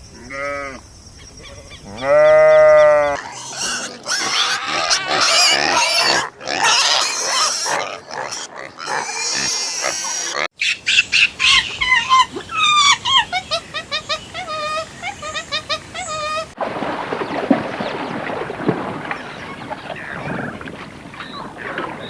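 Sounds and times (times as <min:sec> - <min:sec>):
pigs squealing: 0:01.9 - 0:13.2.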